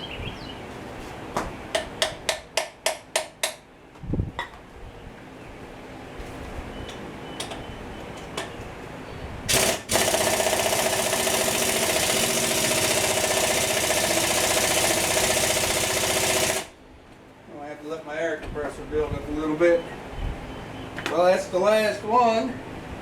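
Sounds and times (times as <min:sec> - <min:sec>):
pneumatic impact wrench hammering: 0:09.5 - 0:16.7.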